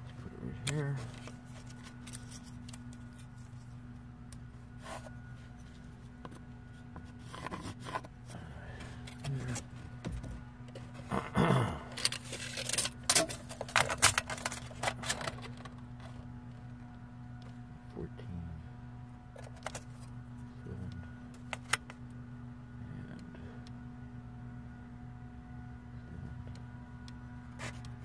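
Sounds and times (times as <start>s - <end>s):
steady low hum: 0.0s - 28.0s
handling scrapes: 4.7s - 6.1s, 6.7s - 9.9s, 27.6s - 27.8s.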